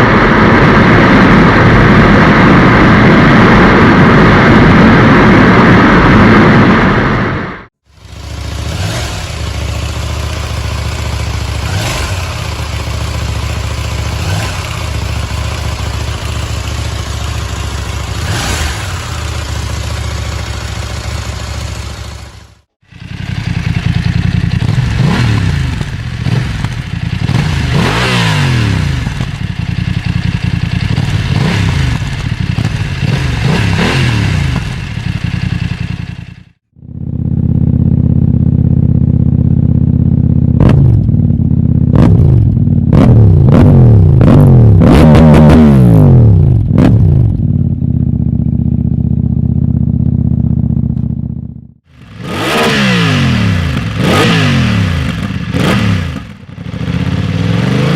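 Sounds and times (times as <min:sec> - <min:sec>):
wind rush: 0:00.0 - 0:07.7
motorcycle engine revving: 0:07.8 - 0:57.9.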